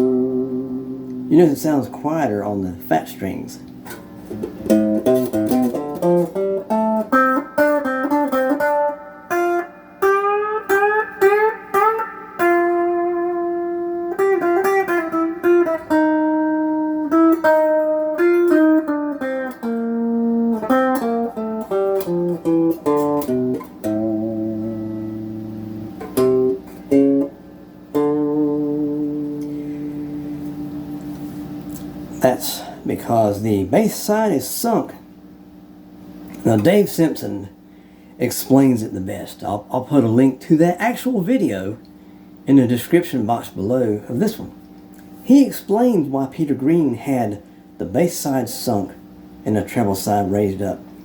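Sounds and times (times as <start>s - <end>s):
clean electric guitar melody: 0.0s - 1.4s, 3.8s - 32.2s.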